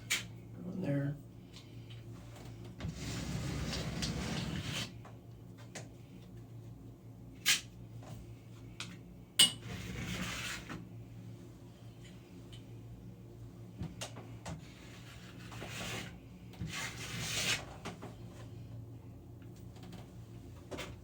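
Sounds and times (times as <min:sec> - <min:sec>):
card scraping spackle on ceiling: 0:02.8 - 0:05.0, 0:09.7 - 0:10.8, 0:14.6 - 0:18.0.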